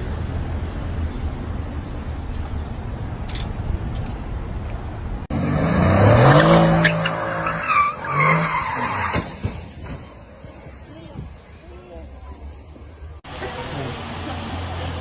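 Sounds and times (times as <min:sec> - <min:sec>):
car engine revving: 0:05.3 - 0:08.8
tyres skidding and squealing: 0:05.3 - 0:15.0.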